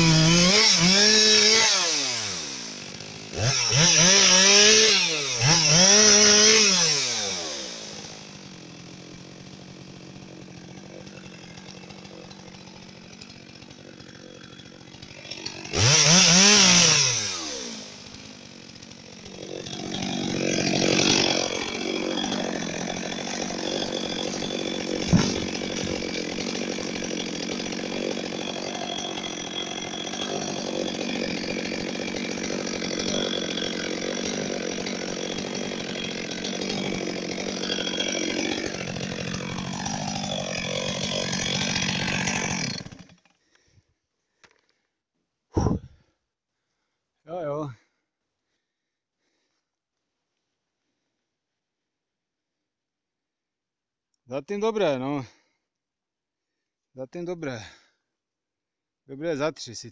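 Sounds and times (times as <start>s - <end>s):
chainsaw revving: 0.0s - 43.3s
sharp knock: 25.1s - 25.5s.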